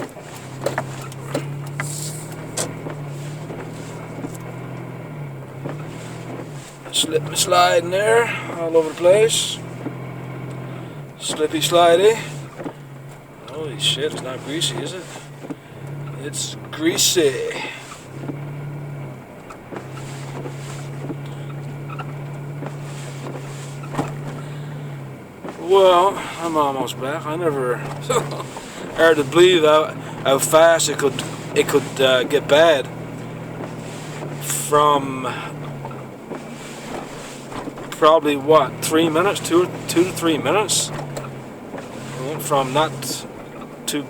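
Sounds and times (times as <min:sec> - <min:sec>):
sharp clicks and knocks: 0:00.0 - 0:07.1, 0:09.6 - 0:16.8, 0:27.8 - 0:44.0
low engine drone: 0:00.0 - 0:44.0.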